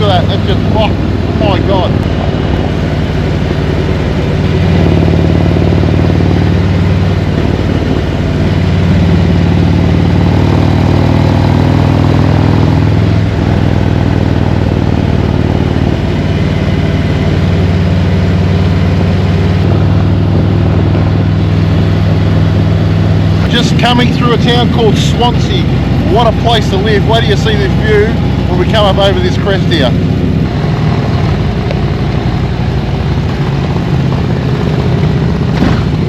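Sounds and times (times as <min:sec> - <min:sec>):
motorcycle engine cruising: 0:00.0 - 0:36.0.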